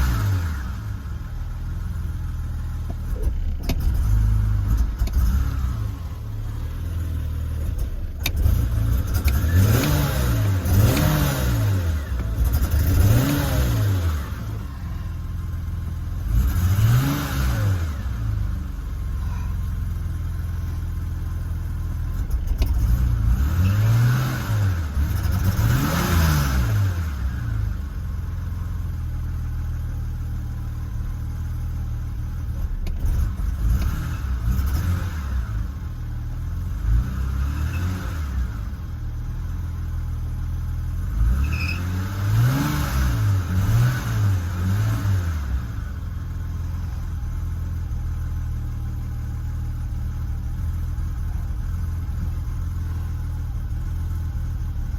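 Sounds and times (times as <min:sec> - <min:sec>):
car engine idling and revving: 0:00.0 - 0:54.9.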